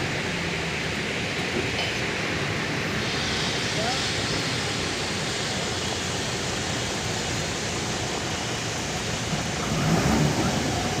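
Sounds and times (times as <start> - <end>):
truck low rumble: 0.0 - 11.0.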